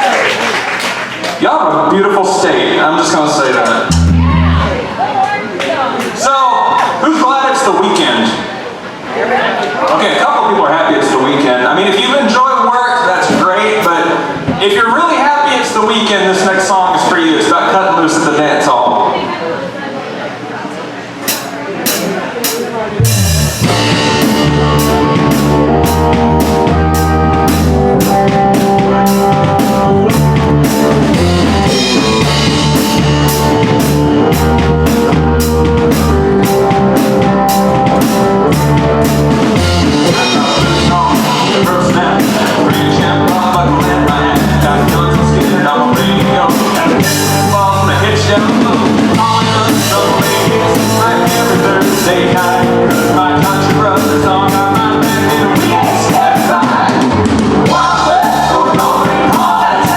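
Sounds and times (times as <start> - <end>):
live band playing: 3.8 - 5.5, 21.3 - 59.9
drum kit beat: 3.9 - 5.0, 21.3 - 59.9.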